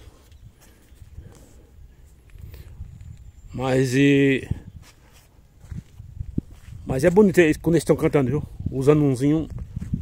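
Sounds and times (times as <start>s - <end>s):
distant birds chirping: 0.0s - 5.6s
wind rumble on microphone: 2.3s - 3.6s, 4.4s - 10.0s.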